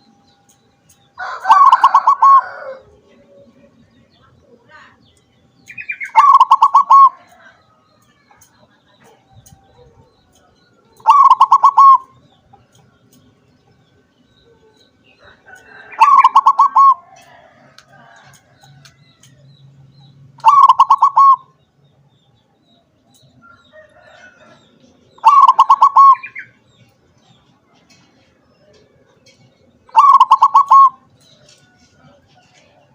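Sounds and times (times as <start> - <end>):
dove cooing: 1.2 - 3.8, 6.0 - 7.4, 10.9 - 12.2, 15.7 - 18.2, 20.4 - 21.6, 25.2 - 26.5, 29.9 - 31.1.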